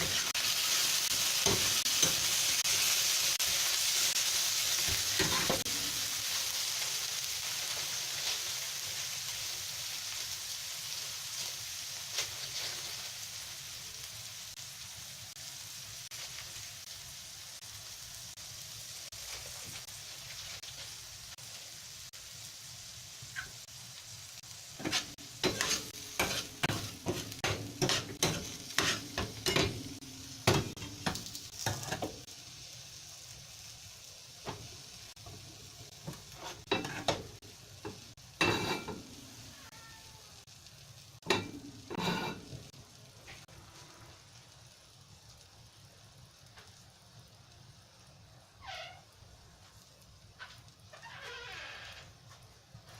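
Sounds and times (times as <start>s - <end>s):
food sizzling in frying pan: 0.0s - 52.9s
spatula clacking against pan: 24.8s - 32.1s.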